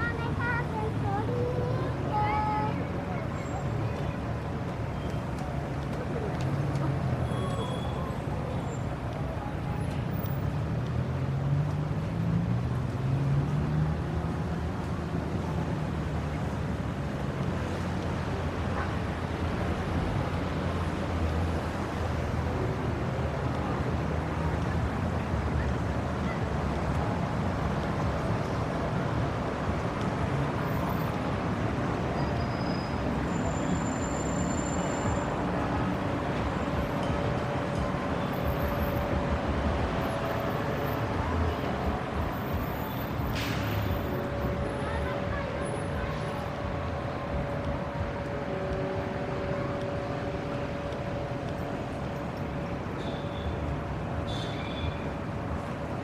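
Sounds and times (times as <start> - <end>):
traffic noise: 0.0 - 56.0.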